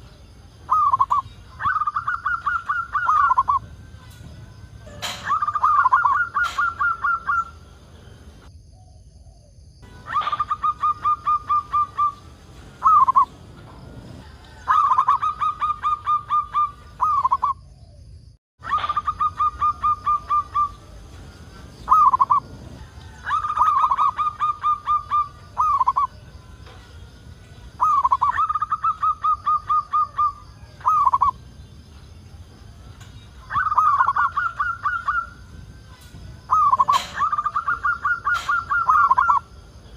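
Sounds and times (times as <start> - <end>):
dove cooing: 0.7 - 3.8, 4.8 - 7.8, 9.9 - 17.5, 18.6 - 26.9, 27.6 - 31.4, 33.5 - 39.5.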